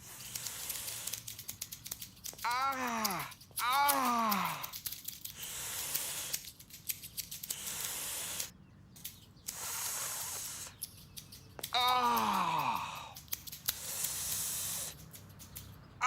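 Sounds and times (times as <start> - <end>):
short hissing bursts: 0.0 - 1.7, 4.0 - 8.5, 9.4 - 10.9, 13.6 - 15.2
scattered clicks: 0.2 - 16.0.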